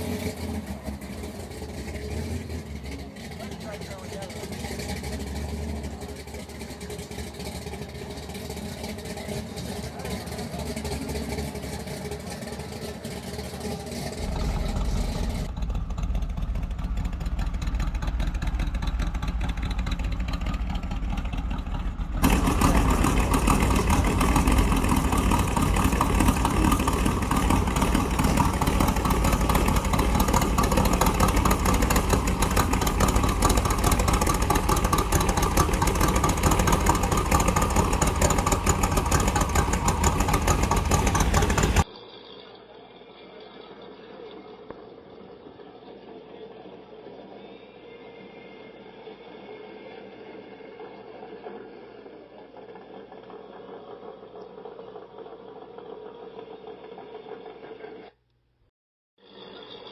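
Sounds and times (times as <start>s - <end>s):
car engine running: 0.0s - 41.9s.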